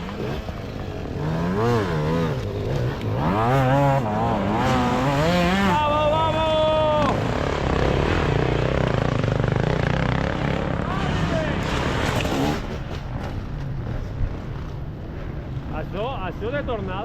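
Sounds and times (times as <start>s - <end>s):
motorcycle engine revving: 0.0s - 15.8s.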